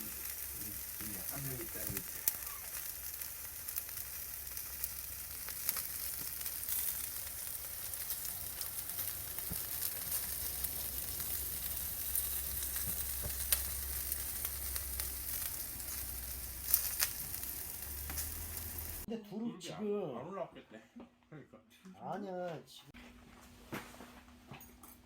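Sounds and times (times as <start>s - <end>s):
meat sizzling on a grill: 0.0s - 19.1s.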